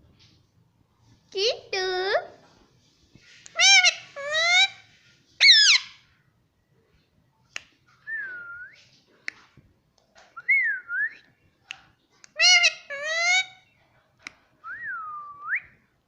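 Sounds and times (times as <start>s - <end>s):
parrot squawk: 3.5s - 4.8s, 5.4s - 6.0s, 12.4s - 13.6s
parrot calling: 3.5s - 6.1s, 12.3s - 13.7s.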